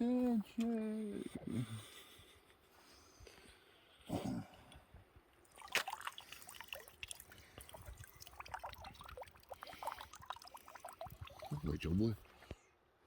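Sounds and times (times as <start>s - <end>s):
water dripping from net: 5.4s - 11.8s.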